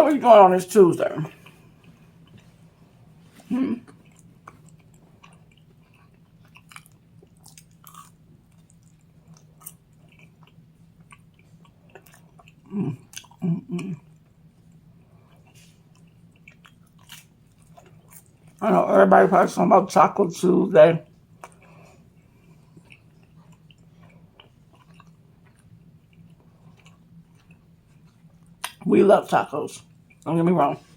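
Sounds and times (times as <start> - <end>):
close chewing with mouth clicks: 1.3 - 2.7, 3.3 - 18.6, 21.2 - 28.8
person humming: 3.4 - 3.9.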